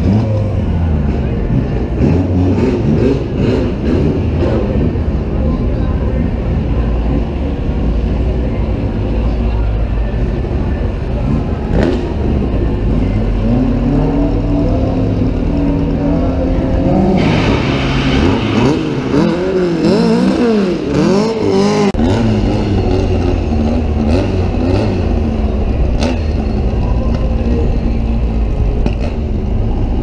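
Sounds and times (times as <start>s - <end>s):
drag racing car engines revving: 0.0s - 30.0s.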